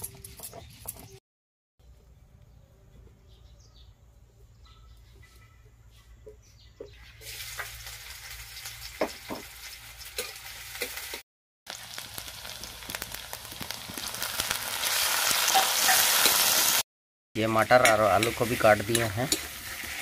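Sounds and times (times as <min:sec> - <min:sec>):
onion sizzling in hot oil: 0:07.2 - 0:16.8, 0:17.4 - 0:20.0.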